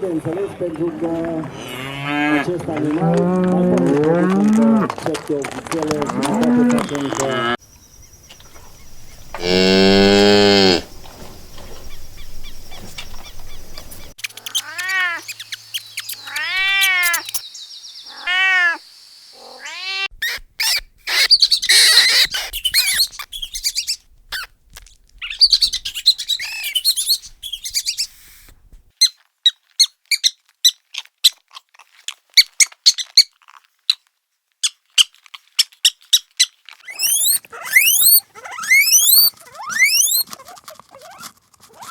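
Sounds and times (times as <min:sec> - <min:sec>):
low moo-like animal call: 0:01.5 - 0:04.9, 0:06.1 - 0:07.6, 0:09.3 - 0:10.9
quick animal chirps and clicks: 0:12.9 - 0:17.5, 0:20.2 - 0:29.2, 0:34.6 - 0:41.9
rising and falling animal calls: 0:14.0 - 0:17.4, 0:18.0 - 0:24.5, 0:25.2 - 0:28.4, 0:36.9 - 0:40.3.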